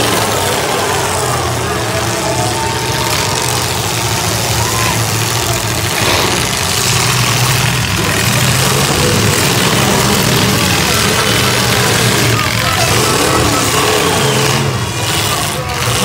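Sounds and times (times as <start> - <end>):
car engines revving: 0.0 - 16.0.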